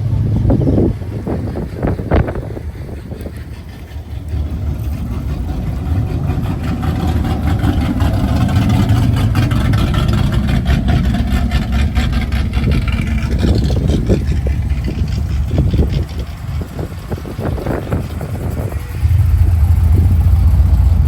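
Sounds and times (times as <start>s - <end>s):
car engine rumbling: 0.0s - 21.0s.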